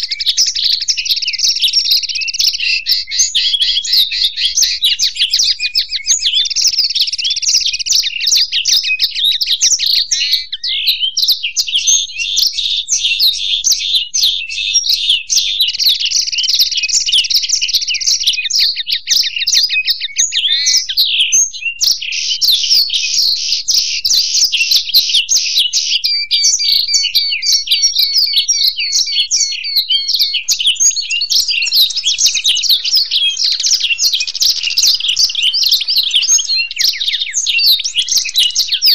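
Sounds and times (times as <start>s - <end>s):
finches twittering song: 21.5s - 38.9s.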